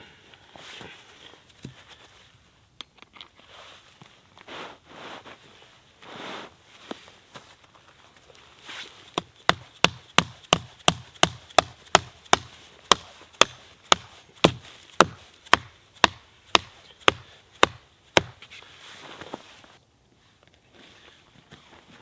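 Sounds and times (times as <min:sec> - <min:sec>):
hand tool chopping wood: 0:09.1 - 0:18.5.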